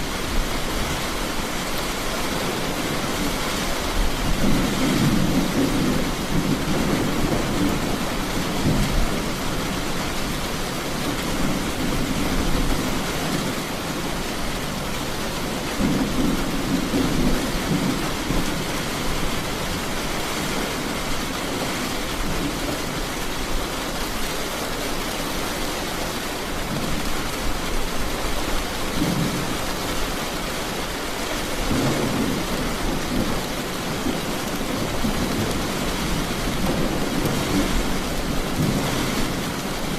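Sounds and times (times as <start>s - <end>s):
heavy rain falling: 0.0s - 39.9s
thunder rumbling: 4.0s - 23.6s.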